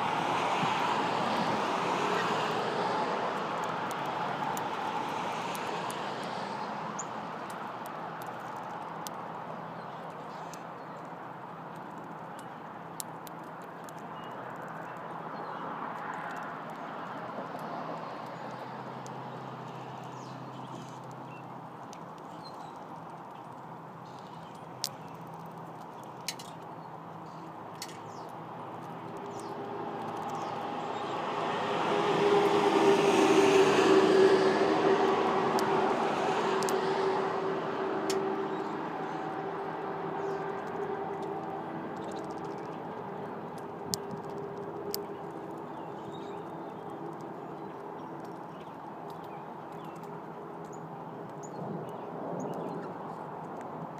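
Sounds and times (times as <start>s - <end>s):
vehicle engine hum passing by: 0.0s - 7.2s, 28.2s - 53.9s.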